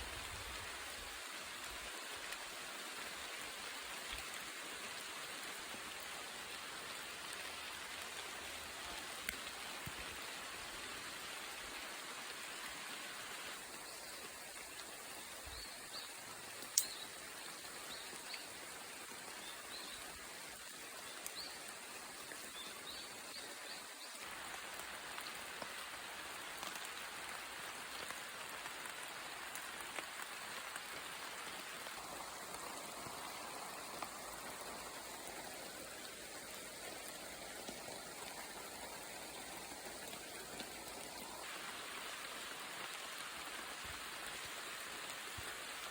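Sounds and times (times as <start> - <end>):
rain on leaves: 0.0 - 45.9
sharp tick: 16.7 - 17.0.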